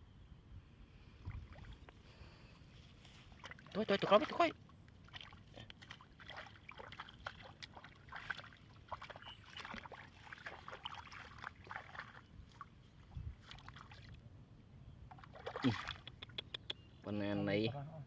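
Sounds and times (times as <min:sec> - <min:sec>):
water splashing and sloshing: 0:01.1 - 0:14.3, 0:15.0 - 0:16.5.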